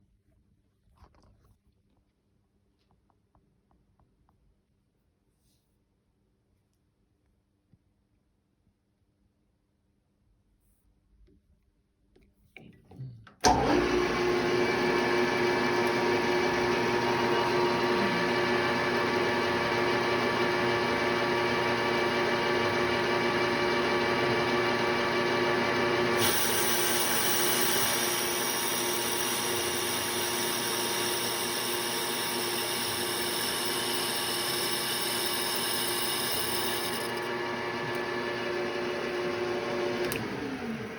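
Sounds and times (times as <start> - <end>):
lathe motor whining: 13.4 - 40.9.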